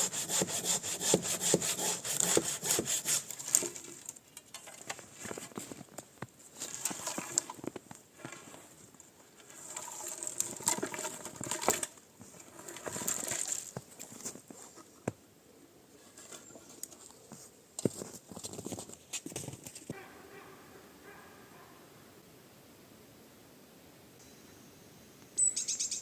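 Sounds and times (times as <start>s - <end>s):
scraping and rustling: 2.0s - 15.0s, 16.0s - 20.0s.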